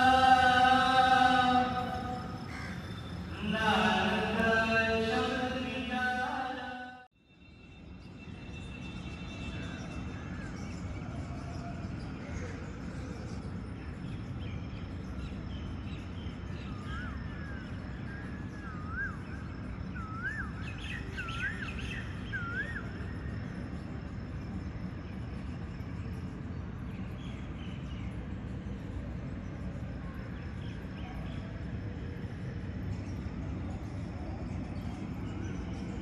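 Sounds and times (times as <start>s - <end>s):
bird whistled calls: 20.0s - 23.0s.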